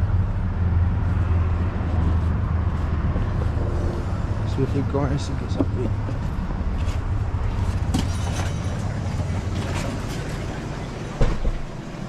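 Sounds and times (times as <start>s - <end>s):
car rumble from inside cabin: 0.0s - 6.6s.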